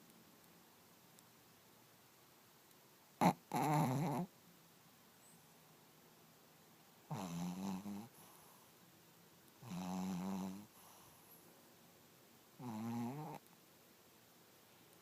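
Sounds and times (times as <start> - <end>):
dog snoring: 3.2 - 4.3, 7.1 - 8.6, 9.6 - 11.3, 12.6 - 13.4.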